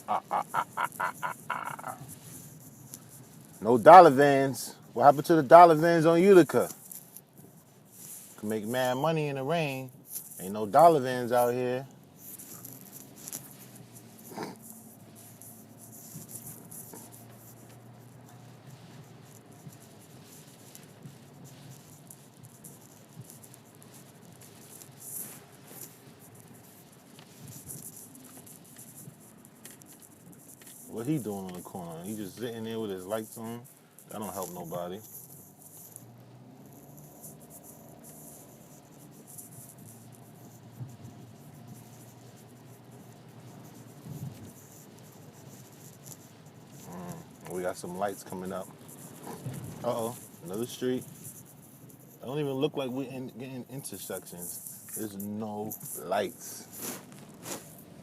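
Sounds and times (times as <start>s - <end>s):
car cabin hum: 10.7s - 35.0s
raindrops pattering on car: 12.0s - 32.3s, 37.2s - 51.6s.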